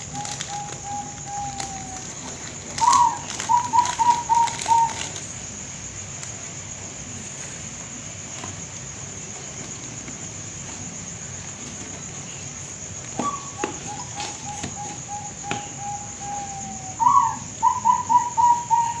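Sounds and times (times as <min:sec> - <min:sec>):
dove cooing: 0:00.0 - 0:05.2, 0:13.1 - 0:19.0.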